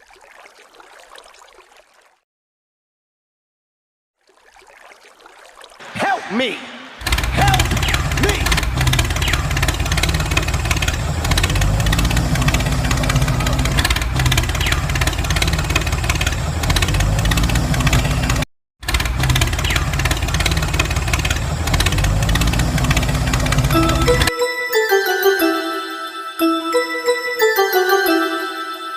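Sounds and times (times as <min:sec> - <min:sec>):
engine idling with knocking chug: 0:07.0 - 0:24.3.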